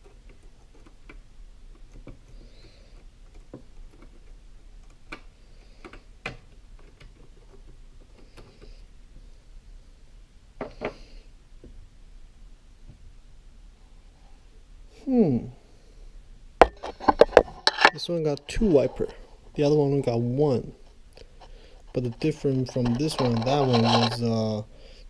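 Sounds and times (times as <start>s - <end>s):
small parts clicking and tapping: 0.0s - 8.7s.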